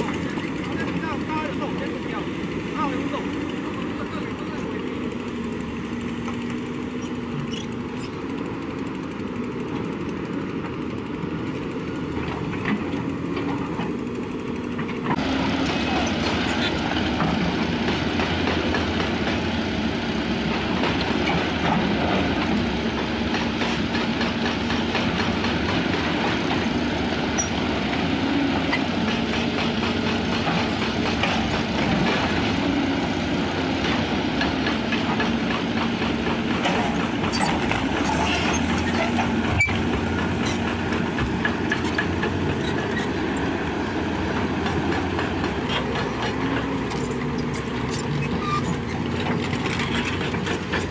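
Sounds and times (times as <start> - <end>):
excavator engine running: 0.0 - 50.9
metal clanks and rattles: 44.6 - 50.9.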